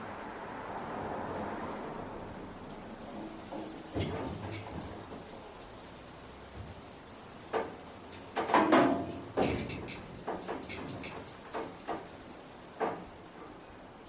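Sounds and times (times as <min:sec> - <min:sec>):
metal knocks and clunks: 0:03.1 - 0:05.4, 0:07.5 - 0:13.6.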